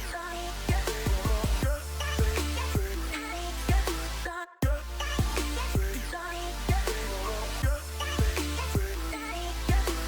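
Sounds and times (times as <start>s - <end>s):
electronic hip-hop beat: 0.0s - 10.0s.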